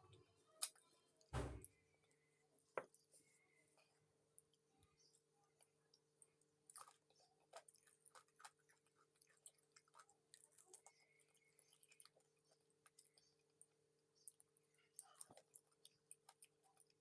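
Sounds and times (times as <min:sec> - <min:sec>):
chewing with wet crunches: 0:04.4 - 0:17.0.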